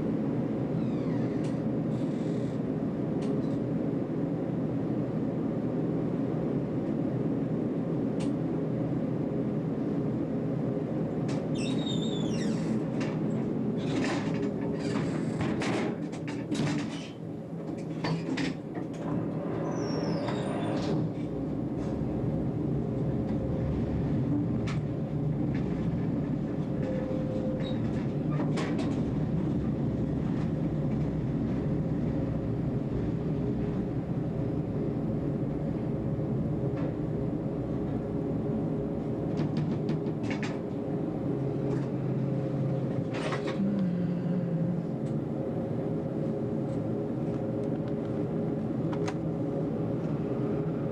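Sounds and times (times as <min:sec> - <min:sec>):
tram motor hum: 0:01.4 - 0:50.9
high wheel squeal: 0:19.6 - 0:20.8.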